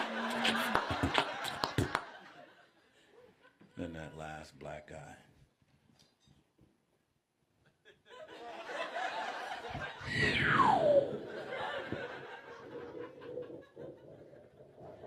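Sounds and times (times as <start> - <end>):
audience laughing: 0.0 - 2.8, 8.1 - 10.1, 11.0 - 15.0
whistle-like sound gliding down: 10.0 - 12.2.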